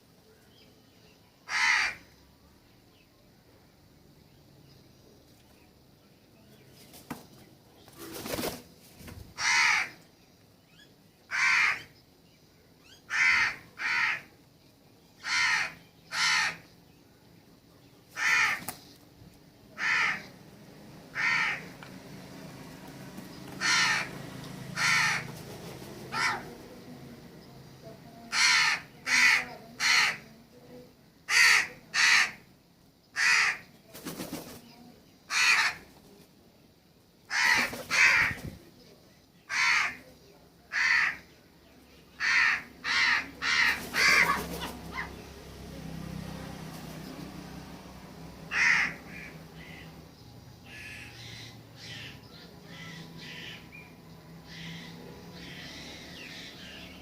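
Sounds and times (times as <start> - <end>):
crow-like bird cawing: 1.5 - 2.1, 9.4 - 10.0, 11.3 - 11.9, 13.1 - 14.3, 15.2 - 16.7, 18.2 - 18.7, 19.8 - 20.3, 21.1 - 21.7, 23.6 - 24.2, 24.8 - 25.3, 26.1 - 26.5, 28.3 - 30.2, 33.2 - 33.7, 35.3 - 35.9, 39.5 - 40.0, 40.7 - 41.3, 42.2 - 45.1, 48.5 - 49.8.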